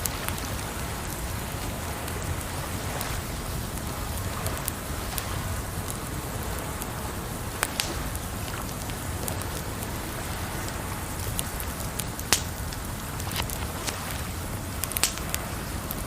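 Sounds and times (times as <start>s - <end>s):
burning wood popping: 0.0s - 16.0s
water noise: 0.0s - 16.0s
wood fire crackling: 0.0s - 16.0s.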